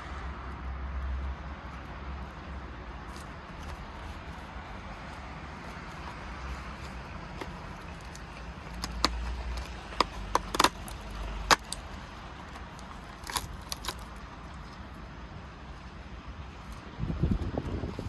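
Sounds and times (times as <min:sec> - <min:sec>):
plastic pieces clicking and rattling: 0:07.4 - 0:11.9.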